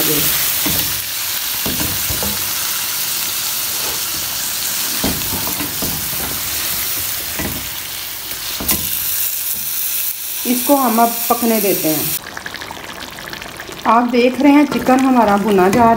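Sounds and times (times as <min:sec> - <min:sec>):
chicken sizzling in oil: 0:00.0 - 0:15.3.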